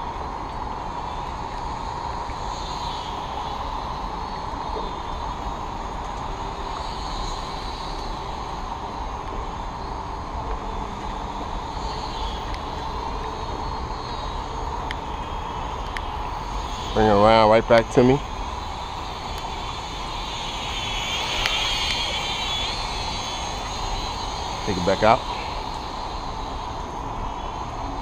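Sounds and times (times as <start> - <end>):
rain hiss: 0.0 - 28.0
toy drone motors whining: 19.0 - 25.8.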